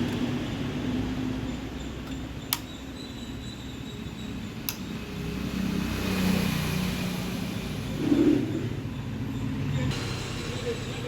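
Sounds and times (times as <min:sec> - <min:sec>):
sharp clicks: 0:02.0 - 0:02.8, 0:04.6 - 0:04.9.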